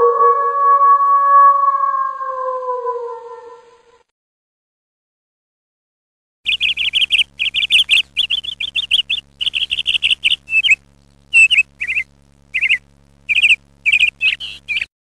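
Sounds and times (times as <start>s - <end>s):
high-pitched rattling chirps: 6.5s - 14.9s.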